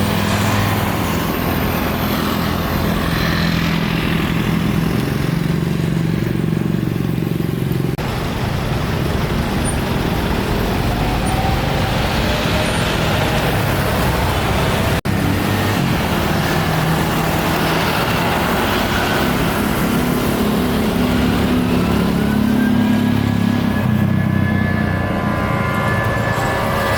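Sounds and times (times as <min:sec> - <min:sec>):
jet engines running: 0:00.0 - 0:26.9
rising engine whine: 0:07.7 - 0:26.9.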